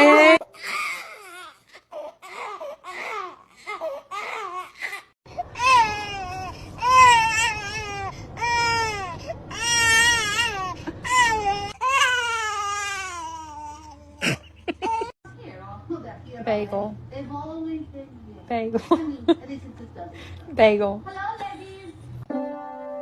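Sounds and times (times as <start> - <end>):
pet loud wailing cries: 0.7 - 14.0.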